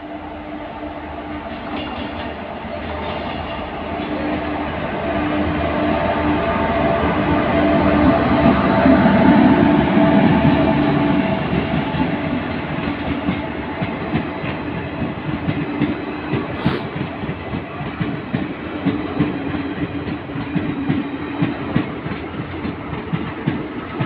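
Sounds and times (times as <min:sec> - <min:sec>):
train wheels clacking over rail joints: 0:01.5 - 0:04.2, 0:11.5 - 0:24.0.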